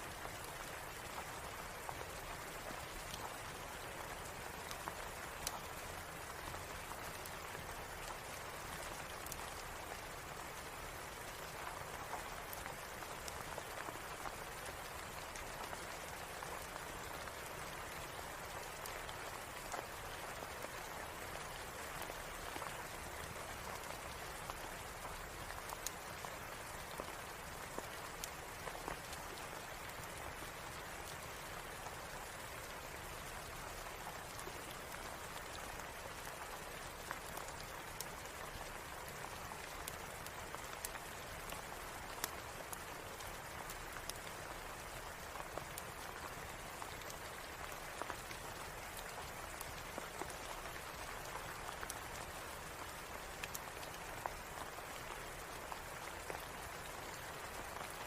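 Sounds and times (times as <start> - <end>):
steady rain: 0.0 - 58.0
fireplace crackling: 4.2 - 5.6, 52.8 - 53.9.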